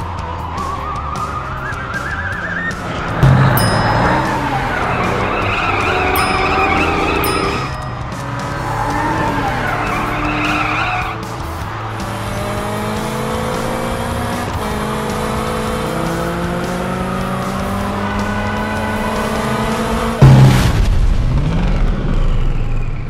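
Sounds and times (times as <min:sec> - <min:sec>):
background music: 0:00.0 - 0:21.4
car engines revving: 0:00.0 - 0:23.0
tyres squealing: 0:00.6 - 0:11.8.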